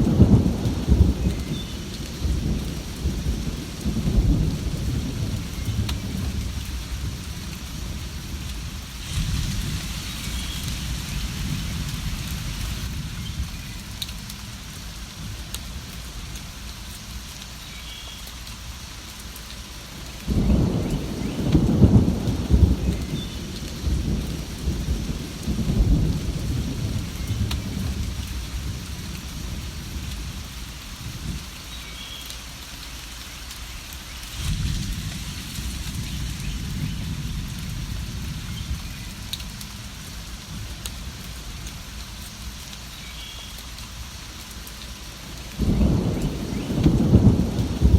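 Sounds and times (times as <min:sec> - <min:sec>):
thunder rumbling: 0:00.0 - 0:16.2, 0:20.3 - 0:31.5, 0:34.3 - 0:42.0, 0:45.2 - 0:47.9
steady rain: 0:00.0 - 0:47.9.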